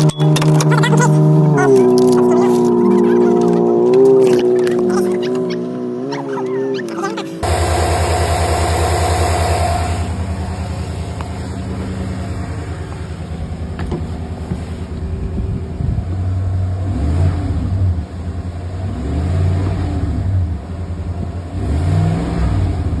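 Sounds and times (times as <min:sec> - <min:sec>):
truck engine idling and revving: 0:00.0 - 0:23.0.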